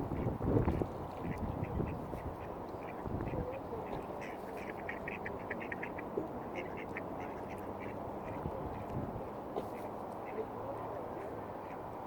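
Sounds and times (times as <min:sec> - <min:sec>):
low background noise: 0:00.0 - 0:12.0
ducks quacking: 0:01.2 - 0:08.5.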